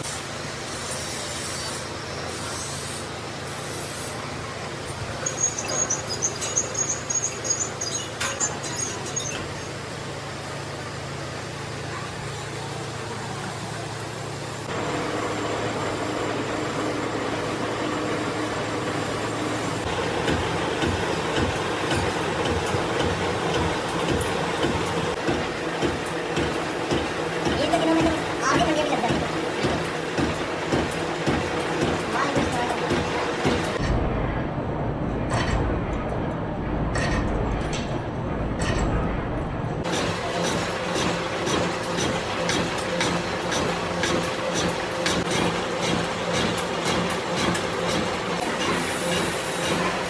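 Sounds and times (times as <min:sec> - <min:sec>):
higher machine hum: 0:00.0 - 0:37.0, 0:38.0 - 0:50.0
metallic rattling and scraping: 0:04.8 - 0:10.1, 0:19.6 - 0:33.8, 0:39.8 - 0:50.0
machine tool humming: 0:14.0 - 0:33.8, 0:39.8 - 0:50.0.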